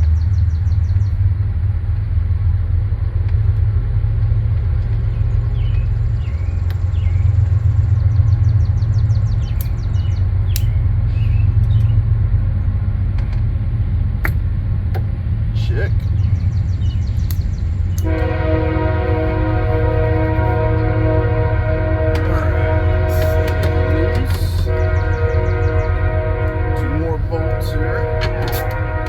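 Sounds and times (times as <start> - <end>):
steady low rumble: 0.0 - 29.0
sharp clicks: 9.4 - 9.9, 10.5 - 10.8, 17.2 - 18.1.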